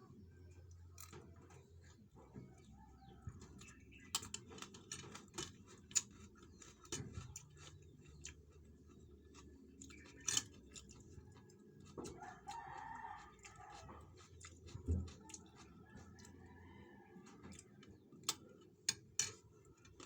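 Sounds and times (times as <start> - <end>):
rooster crowing: 12.0 - 14.1.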